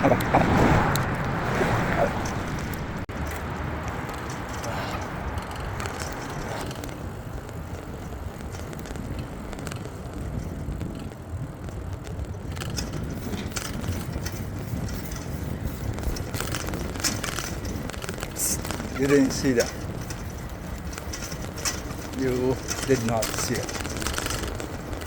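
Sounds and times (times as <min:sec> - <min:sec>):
bike clicks and rattles: 0:00.0 - 0:25.0
wind and road rumble: 0:00.0 - 0:25.0.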